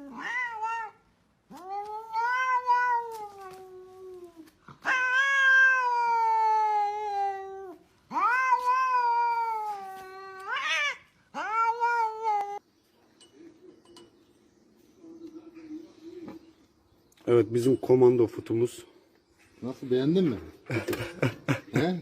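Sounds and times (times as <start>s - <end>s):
cat yowling: 0.0s - 12.6s.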